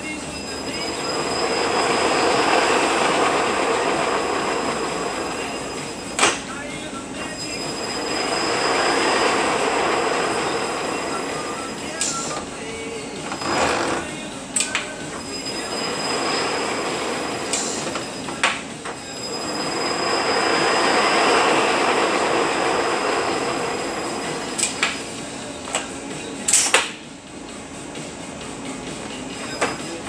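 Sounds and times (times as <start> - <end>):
transmission whirring and whining: 0.0 - 30.0
sharp clicks: 14.1 - 15.0.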